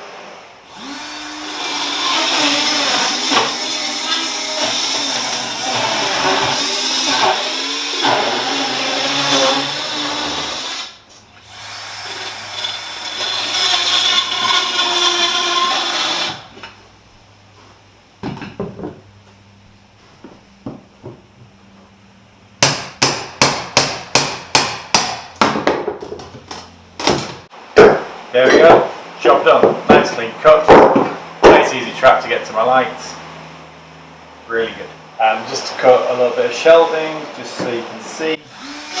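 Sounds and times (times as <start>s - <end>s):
circular saw cutting wood: 0.0s - 16.5s, 35.2s - 39.0s
sharp knocks: 22.6s - 26.3s, 30.7s - 31.7s.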